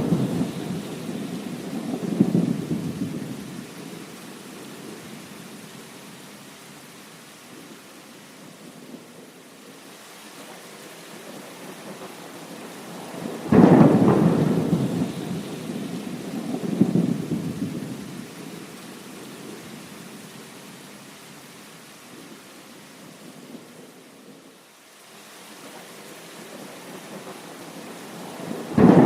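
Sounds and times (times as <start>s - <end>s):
thunderclap: 0.0s - 3.2s, 13.4s - 17.8s, 28.4s - 29.0s
steady rain: 0.0s - 29.0s.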